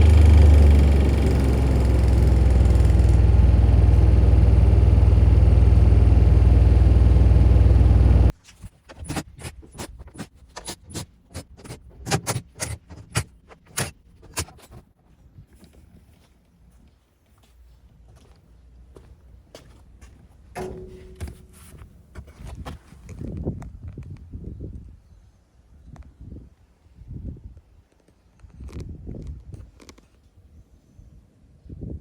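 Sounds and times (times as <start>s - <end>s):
diesel engine running: 0.0s - 8.3s
sharp clicks and clatters: 0.0s - 8.3s.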